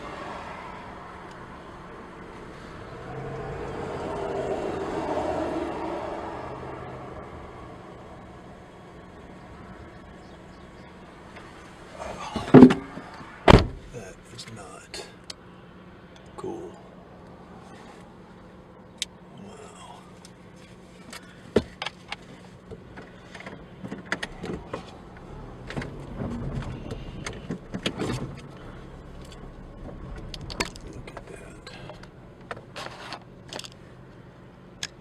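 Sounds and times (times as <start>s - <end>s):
car engine hum: 0.0s - 35.0s
clicks and knocks inside car: 12.2s - 13.9s, 21.0s - 28.6s.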